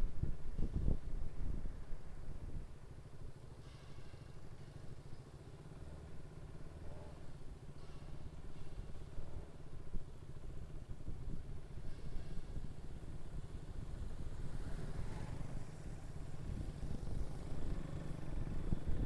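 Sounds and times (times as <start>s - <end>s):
motorcycle engine rumble: 12.5s - 19.0s
road noise: 12.5s - 19.0s.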